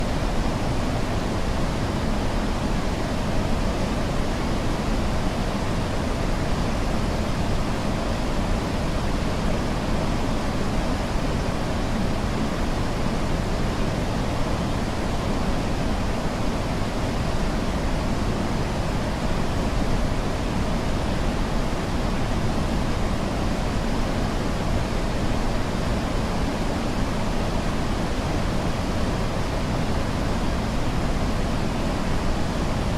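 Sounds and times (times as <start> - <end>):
waterfall rushing roar: 0.0 - 32.9.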